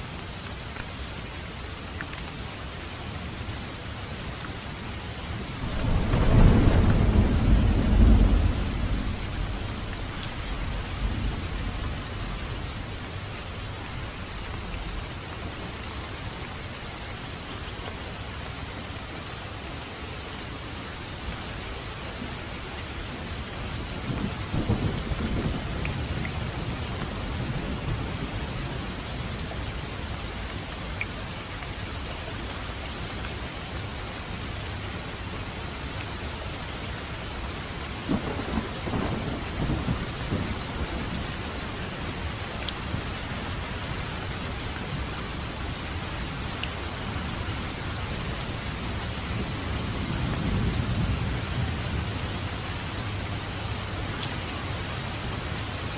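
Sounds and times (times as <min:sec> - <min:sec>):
rain falling on a roof: 0:00.0 - 0:55.9
thunder rumbling: 0:05.6 - 0:12.7, 0:38.1 - 0:45.5, 0:48.5 - 0:52.8.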